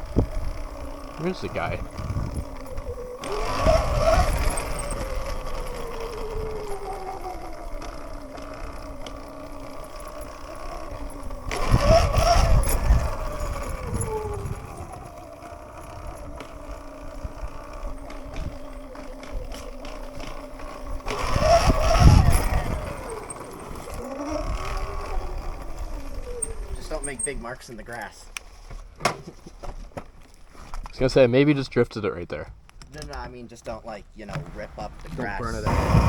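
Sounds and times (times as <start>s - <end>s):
wind rushing over microphone: 0.0s - 7.0s, 10.9s - 18.7s, 20.9s - 27.0s, 34.8s - 36.0s
electric motorbike motor whining: 0.0s - 29.0s, 34.3s - 36.0s.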